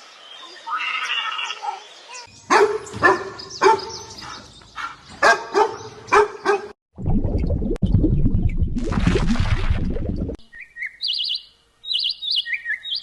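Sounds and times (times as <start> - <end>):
dog barking: 2.5 - 6.8.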